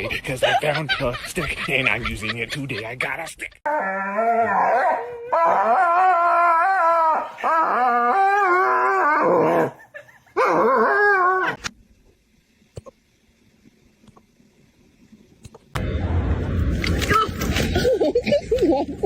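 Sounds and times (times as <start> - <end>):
dog howling: 3.7 - 9.8, 10.4 - 11.6.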